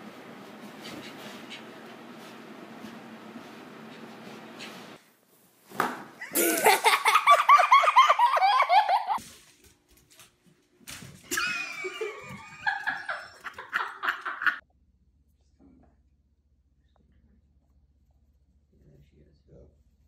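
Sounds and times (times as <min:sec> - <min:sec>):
person laughing loudly: 0:06.2 - 0:09.2, 0:11.3 - 0:14.6.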